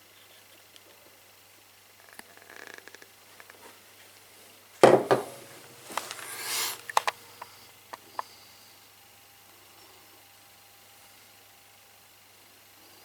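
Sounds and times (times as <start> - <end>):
loud knock: 4.8 - 5.5.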